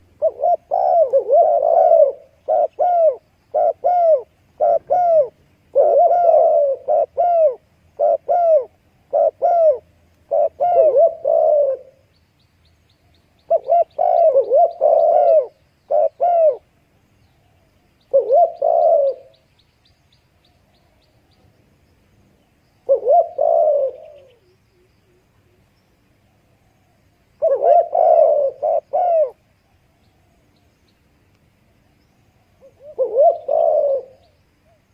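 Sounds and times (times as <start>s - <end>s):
dove cooing: 0.0s - 12.1s, 13.4s - 16.7s, 17.4s - 19.4s, 22.8s - 25.7s, 26.4s - 29.4s, 32.4s - 34.9s.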